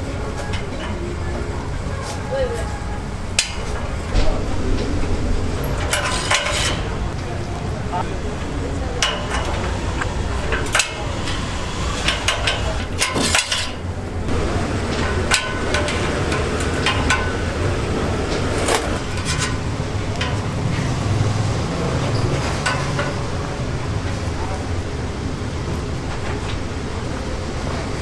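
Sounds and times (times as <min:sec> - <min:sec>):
steady low hum: 0:00.0 - 0:27.8
metal utensils and dishes clinking: 0:05.6 - 0:07.1, 0:08.9 - 0:13.9, 0:14.8 - 0:23.4.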